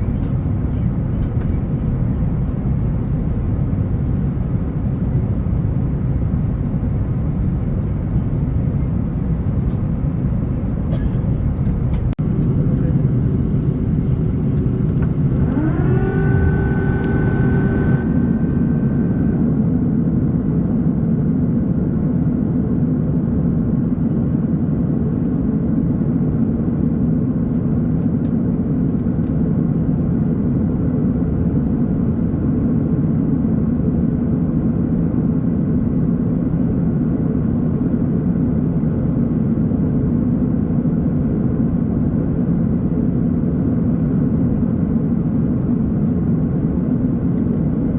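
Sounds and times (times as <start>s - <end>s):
airplane cabin rumble: 0.0s - 47.9s
rising whine: 11.9s - 21.2s.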